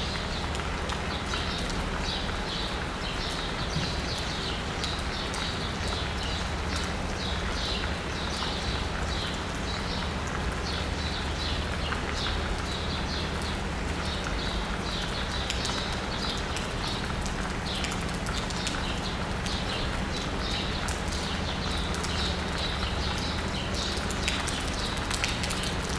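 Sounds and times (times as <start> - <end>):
rain pattering on asphalt: 0.0 - 25.9.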